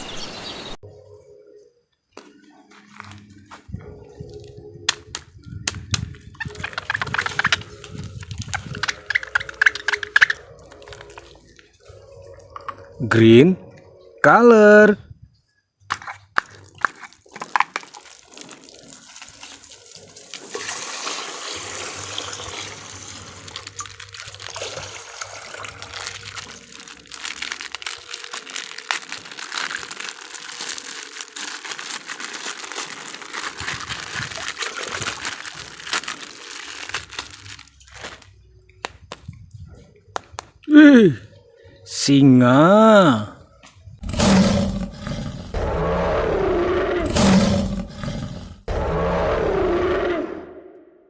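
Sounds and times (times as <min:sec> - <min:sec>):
plastic packaging crinkling: 0:06.1 - 0:12.6, 0:16.0 - 0:20.6, 0:22.0 - 0:38.4.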